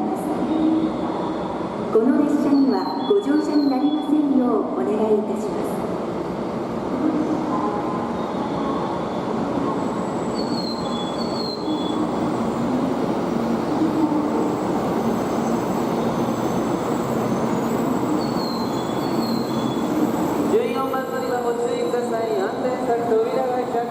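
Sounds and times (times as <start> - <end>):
high falling squeals: 15.3 - 22.5.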